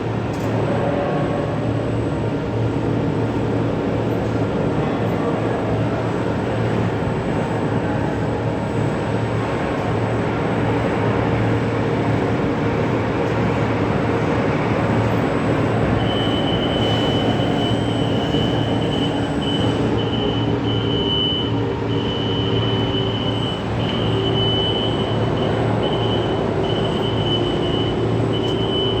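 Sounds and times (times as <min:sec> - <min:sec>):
cnc machine cutting steel: 0:13.8 - 0:29.0.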